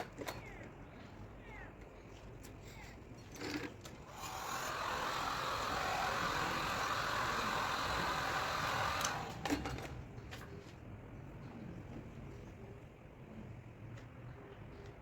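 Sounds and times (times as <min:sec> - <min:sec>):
blower rushing hiss: 0:04.1 - 0:09.4.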